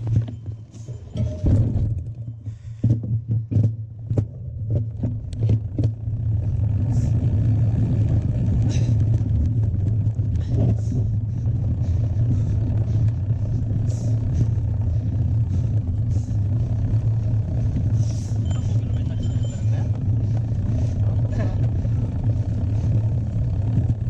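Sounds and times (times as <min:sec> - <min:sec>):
faint high whine: 0:18.0 - 0:20.4.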